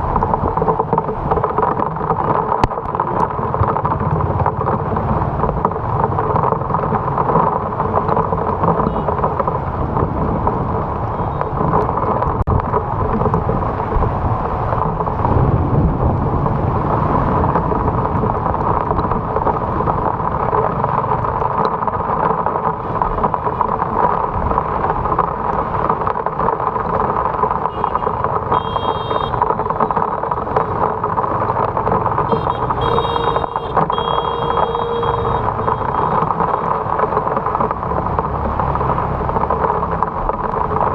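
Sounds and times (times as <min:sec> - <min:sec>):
rain and wind noise: 0:00.0 - 0:40.9
tyres on wet road: 0:00.0 - 0:40.9
short high-pitched tones: 0:32.3 - 0:36.2.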